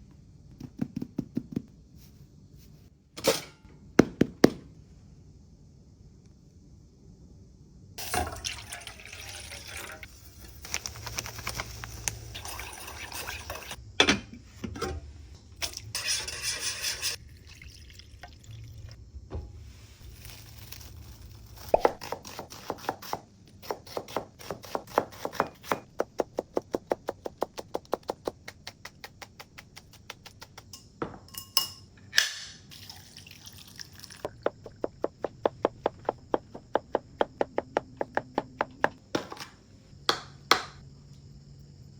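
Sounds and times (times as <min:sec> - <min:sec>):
water running and pouring: 0:08.0 - 0:10.6, 0:12.2 - 0:13.8, 0:15.6 - 0:19.0, 0:32.7 - 0:34.4
knife chopping on cutting board: 0:21.8 - 0:30.6.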